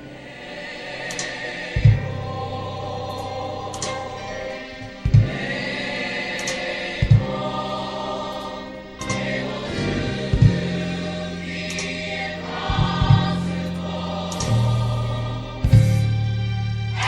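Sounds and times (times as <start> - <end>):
choir singing held chords: 0.0 - 17.0
bass notes: 9.0 - 17.0
sharp beats: 14.2 - 16.1.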